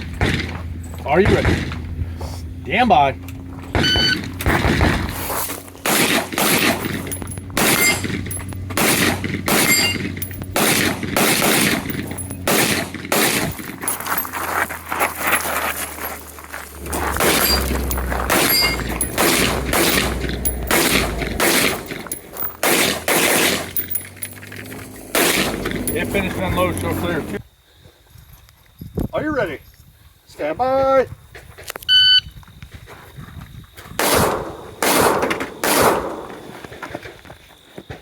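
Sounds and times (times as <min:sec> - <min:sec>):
rifle shots: 0:05.8 - 0:13.8, 0:17.1 - 0:24.0, 0:25.1 - 0:25.8, 0:34.0 - 0:36.4.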